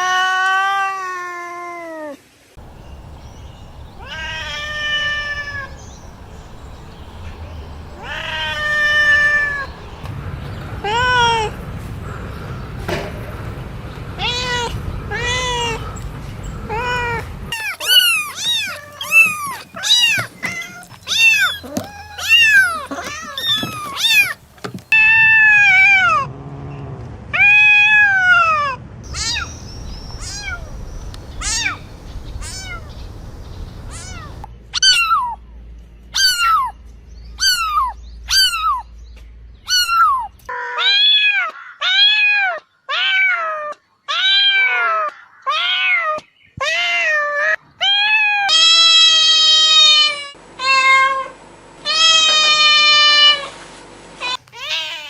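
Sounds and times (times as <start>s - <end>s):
cats meowing: 3.9s - 9.8s, 10.8s - 11.6s, 14.2s - 15.8s, 16.6s - 26.2s, 27.4s - 33.1s, 33.8s - 35.4s, 36.2s - 36.7s, 37.4s - 38.8s, 39.7s - 53.5s, 54.2s - 55.0s.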